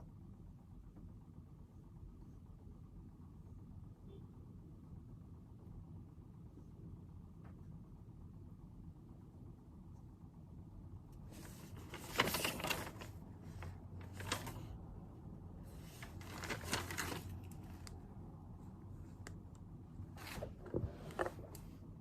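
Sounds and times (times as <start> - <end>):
low room hum: 0.0 - 22.0
paper and stationery rustling: 11.2 - 14.8, 15.7 - 17.9, 20.1 - 21.7.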